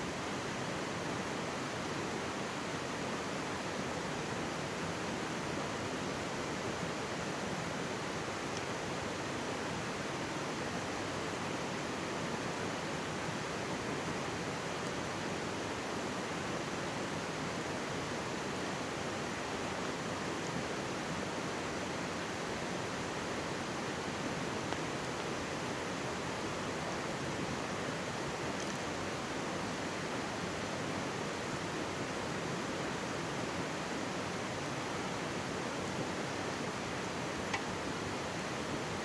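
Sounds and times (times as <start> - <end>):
stream water rushing: 0.0 - 39.0.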